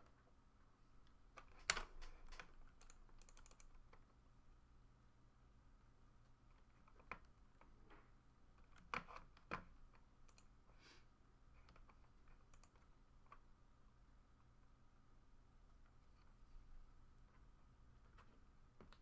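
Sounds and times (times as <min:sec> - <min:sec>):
low room hum: 0:00.0 - 0:19.0
faint clicks and taps: 0:18.1 - 0:19.0.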